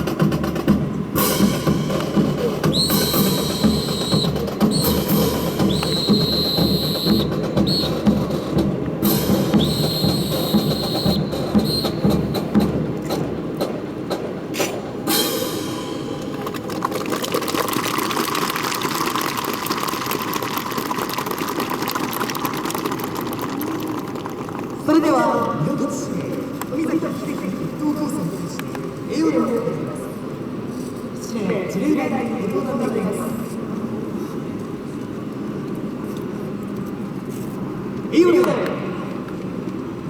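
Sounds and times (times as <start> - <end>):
marching drum beat: 0.0 - 14.3
steady noise: 14.8 - 32.2.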